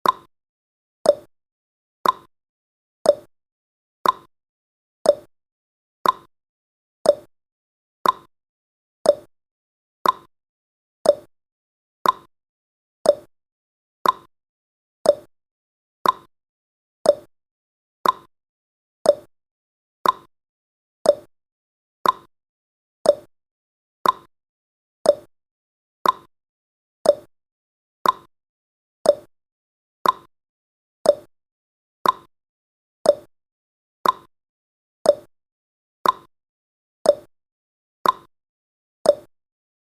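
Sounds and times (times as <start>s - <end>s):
clock ticking: 2.0s - 2.3s, 4.0s - 4.3s, 6.0s - 6.3s, 8.0s - 8.3s, 10.0s - 10.3s, 12.0s - 12.3s, 14.0s - 14.3s, 15.1s - 15.3s, 16.0s - 16.3s, 18.0s - 18.3s, 20.0s - 20.3s, 22.0s - 22.3s, 24.0s - 24.3s, 25.1s - 25.3s, 26.0s - 26.3s, 27.1s - 27.3s, 28.0s - 28.3s, 29.1s - 29.3s, 30.0s - 30.3s, 32.0s - 32.3s, 33.1s - 33.3s, 34.0s - 34.3s, 36.0s - 36.3s, 38.0s - 38.3s.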